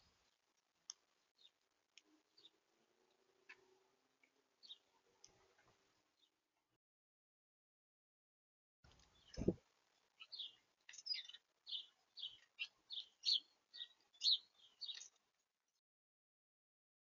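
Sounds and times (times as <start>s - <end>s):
small bird chirping: 4.6s - 4.9s, 9.0s - 9.6s, 10.2s - 15.2s.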